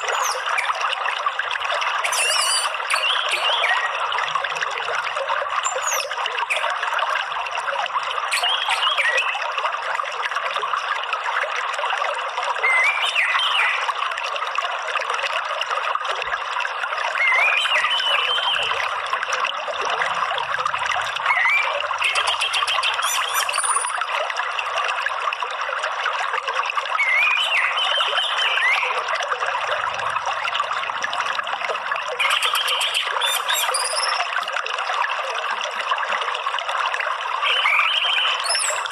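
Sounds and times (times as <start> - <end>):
water trickling: 0.0 - 38.9
bird chirping calls: 2.0 - 3.9, 21.3 - 24.0, 32.2 - 34.3, 37.5 - 38.9.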